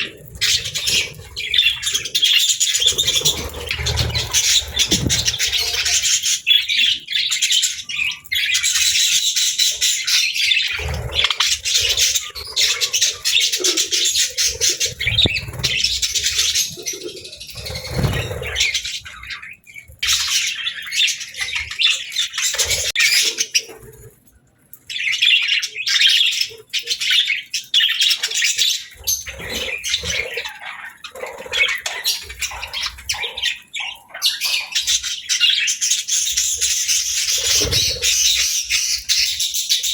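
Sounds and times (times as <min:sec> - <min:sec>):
budgerigars chattering and chirping: 0:00.0 - 0:23.9, 0:24.9 - 0:39.9.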